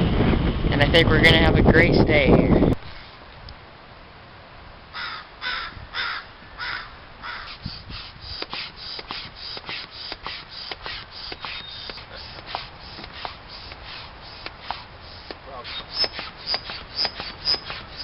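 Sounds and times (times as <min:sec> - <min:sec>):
bird harsh caw-like calls: 0:04.9 - 0:07.8.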